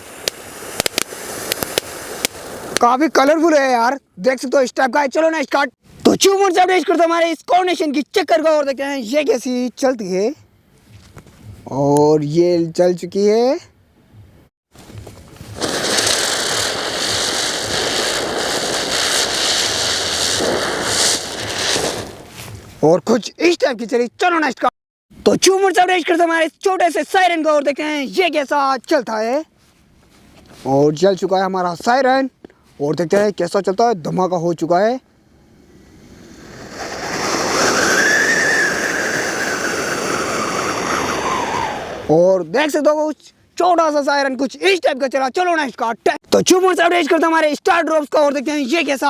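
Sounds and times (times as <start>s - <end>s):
ground spinner firework hissing: 0.0s - 2.9s, 14.8s - 22.6s, 35.3s - 42.2s.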